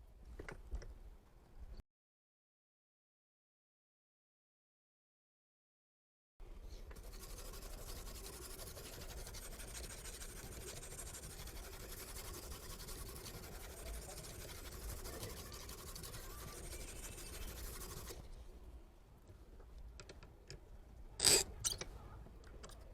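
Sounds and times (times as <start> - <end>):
knife scraping sharpening stone: 21.2 - 21.8.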